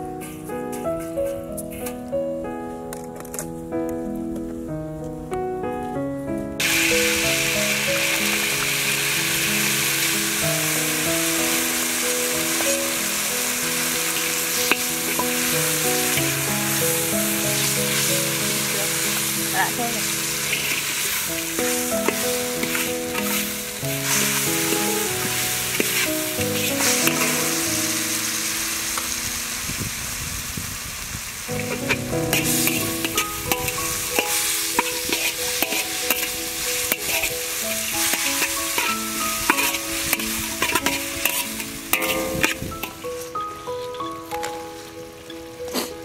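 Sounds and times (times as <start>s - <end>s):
background music: 0.0s - 29.6s, 31.5s - 46.0s
food sizzling in hot oil: 6.6s - 45.6s
metal spatula scraping a wok: 20.4s - 27.6s, 31.6s - 43.0s.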